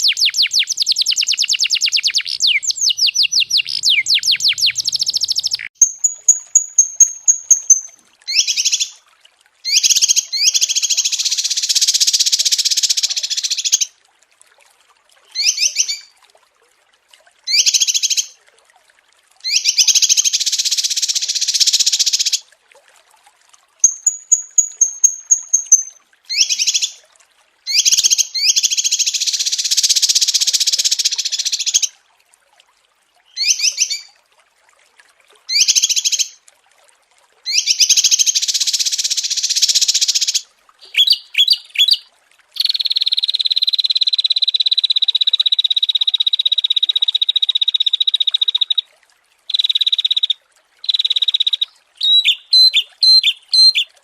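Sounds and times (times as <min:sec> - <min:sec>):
songbirds chirping: 0:00.0 - 0:08.8, 0:40.8 - 0:42.7
bird trill: 0:00.0 - 0:08.9, 0:23.8 - 0:26.9, 0:40.9 - 0:44.2, 0:49.5 - 0:53.9.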